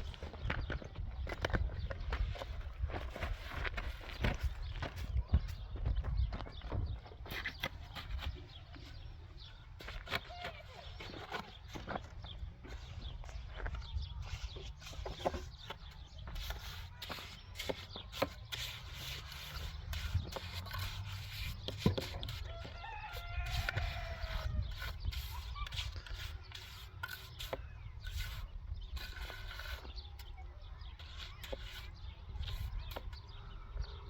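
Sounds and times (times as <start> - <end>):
rooster crowing: 22.5 - 24.6.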